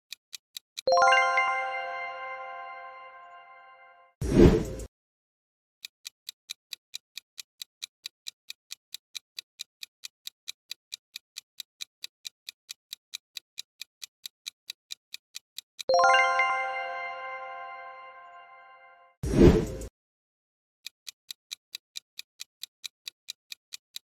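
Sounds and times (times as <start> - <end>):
quick clock-like ticks: 0.0 - 1.1, 5.8 - 15.9, 20.8 - 24.0
bell-like chime: 0.9 - 4.2, 15.9 - 19.2.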